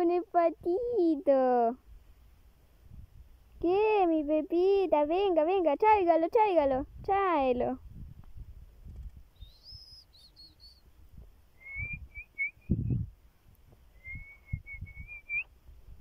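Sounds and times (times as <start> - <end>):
quick short bird chirps: 9.3 - 10.8
bird whistled phrase: 9.4 - 10.8.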